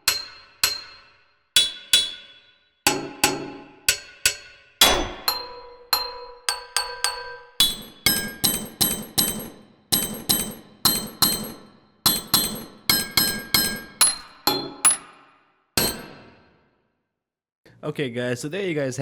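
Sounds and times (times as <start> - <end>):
metallic drum hits: 4.8 - 6.0, 7.6 - 15.2, 15.8 - 16.5.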